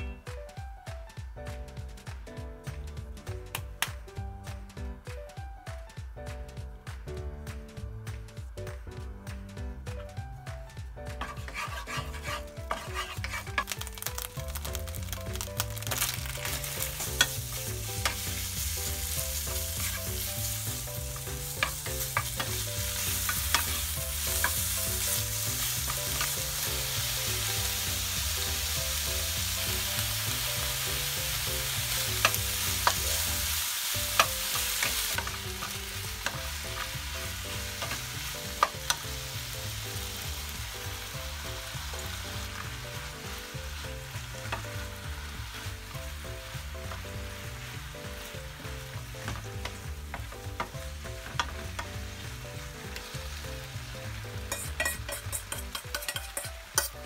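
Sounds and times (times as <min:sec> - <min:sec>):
meat sizzling in oil: 0:09.8 - 0:57.0
wooden spatula knocking pan: 0:11.1 - 0:14.7, 0:49.0 - 0:53.2, 0:54.4 - 0:57.0.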